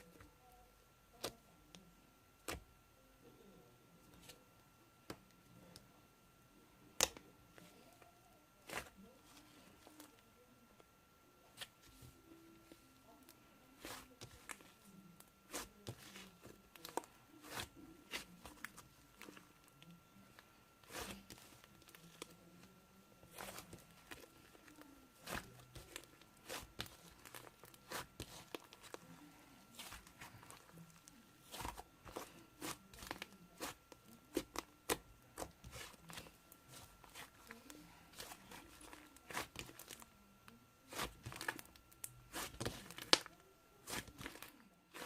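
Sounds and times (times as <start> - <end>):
slime squishing with pops: 23.2 - 29.0, 29.7 - 37.5, 38.1 - 40.0, 40.9 - 45.0.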